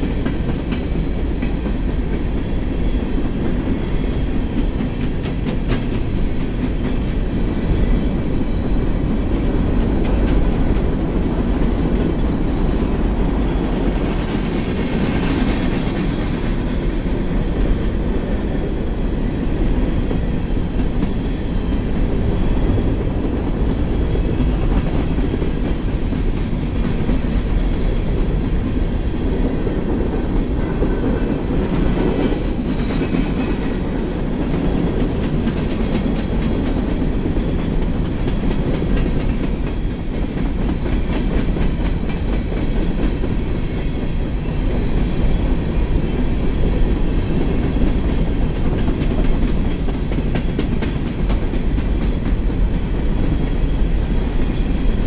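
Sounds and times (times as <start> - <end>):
freight train wheels rolling on rails: 0.0 - 55.0.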